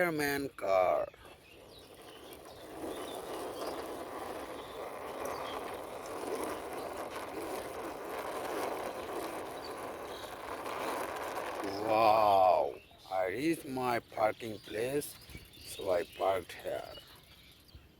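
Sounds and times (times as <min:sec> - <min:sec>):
toy car wheels rolling: 0:00.0 - 0:12.7.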